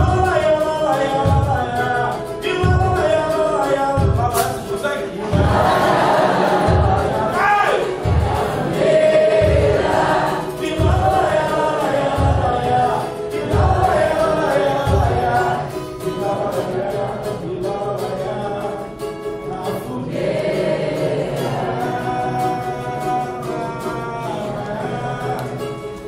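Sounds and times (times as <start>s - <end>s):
heavy low drum beats: 0.0s - 16.9s
voices singing with music: 0.0s - 26.0s.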